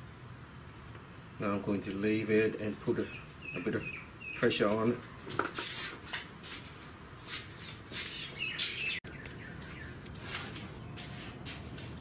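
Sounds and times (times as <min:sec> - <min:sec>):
small birds chirping: 0:02.6 - 0:05.2, 0:07.2 - 0:11.4.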